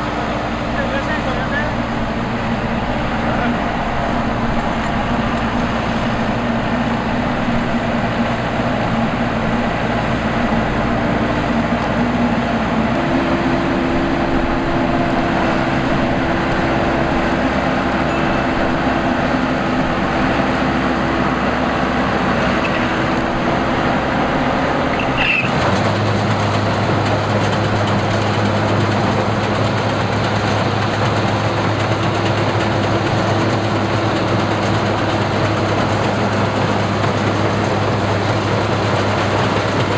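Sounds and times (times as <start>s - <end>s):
combine harvester engine hum: 0.0s - 39.9s.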